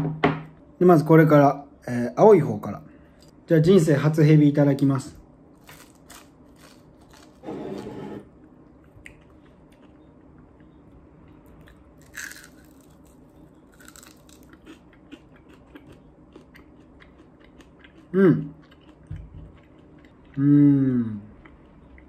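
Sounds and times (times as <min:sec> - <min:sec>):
crunchy chewing: 0:05.6 - 0:07.5, 0:08.6 - 0:20.4
person humming: 0:20.4 - 0:21.3.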